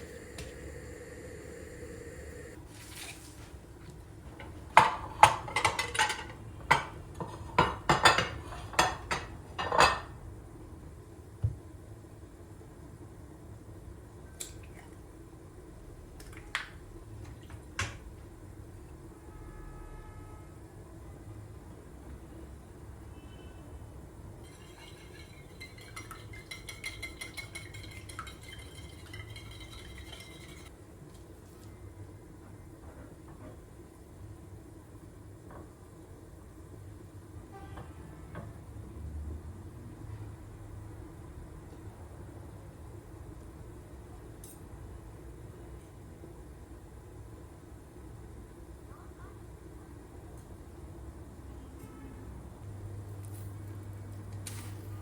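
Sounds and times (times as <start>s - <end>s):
utensils clinking against dishes: 24.4s - 30.7s.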